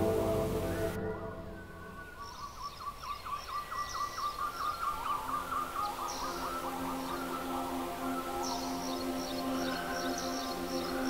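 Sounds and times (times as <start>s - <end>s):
ambient music: 0.0s - 2.6s, 5.6s - 11.0s
songbird chirping: 0.0s - 11.0s.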